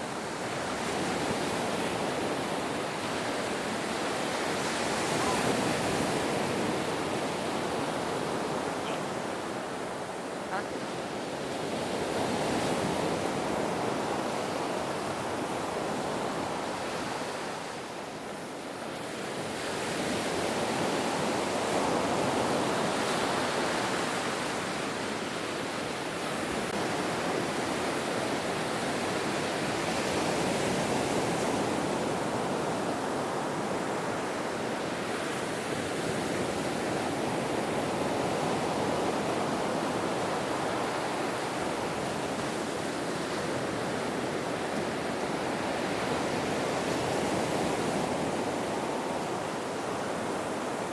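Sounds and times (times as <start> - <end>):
ocean waves breaking: 0.0 - 17.9.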